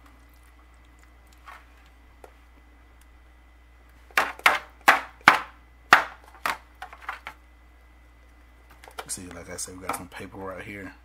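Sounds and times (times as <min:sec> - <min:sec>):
sharp knocks: 0:04.1 - 0:06.6.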